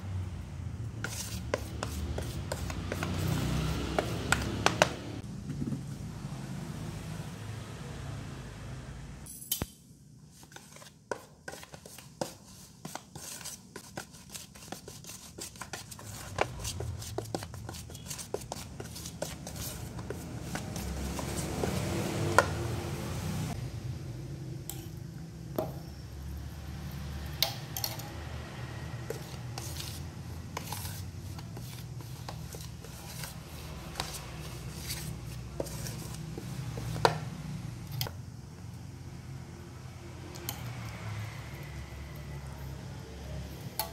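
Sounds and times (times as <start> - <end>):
gritty flour scraping: 1.0 - 5.1, 10.3 - 22.7, 29.0 - 37.2
spoon clinking against bowl: 27.4 - 28.1.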